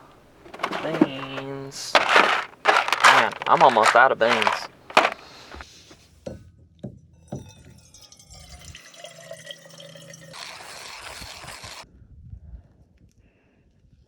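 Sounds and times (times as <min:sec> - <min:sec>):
water pouring from a kettle: 0:08.9 - 0:11.8.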